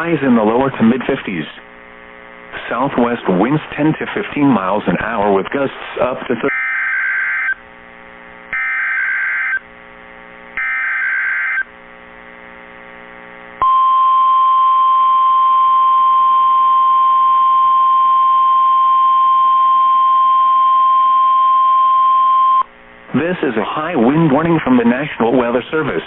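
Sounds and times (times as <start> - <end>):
steady alarm tone: 6.5 - 7.6, 8.5 - 9.6, 10.6 - 11.7.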